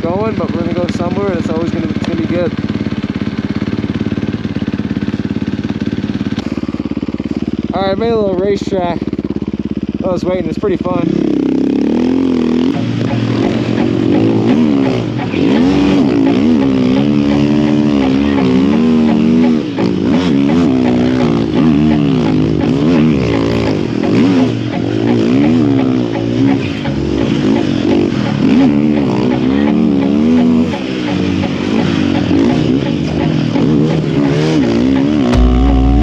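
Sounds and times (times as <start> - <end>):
snow bike engine revving: 10.8 - 36.0.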